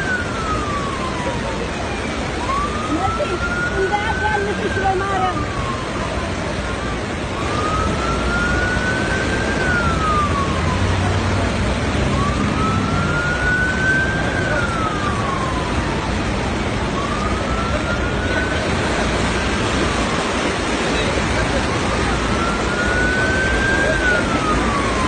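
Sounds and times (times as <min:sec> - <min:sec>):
emergency vehicle siren wailing: 0:00.0 - 0:25.0
steady rushing noise: 0:00.0 - 0:25.0.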